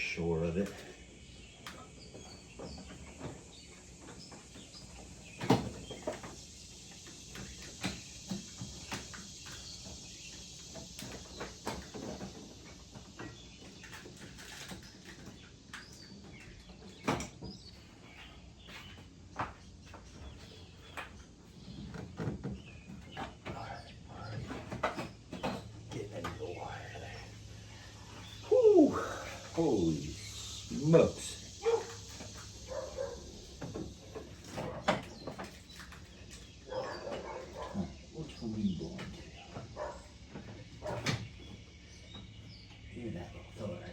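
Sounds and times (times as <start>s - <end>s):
faint bird chirps: 13.2s - 43.9s.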